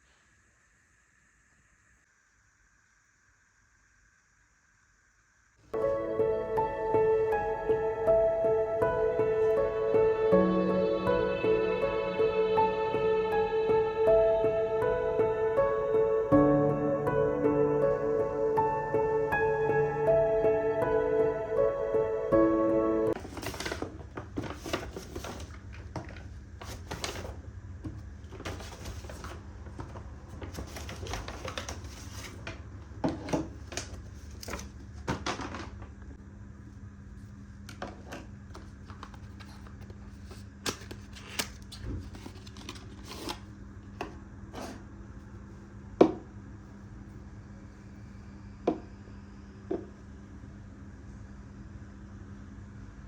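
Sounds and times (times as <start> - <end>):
low steady hum: 5.7 - 53.0
background music: 5.8 - 23.2.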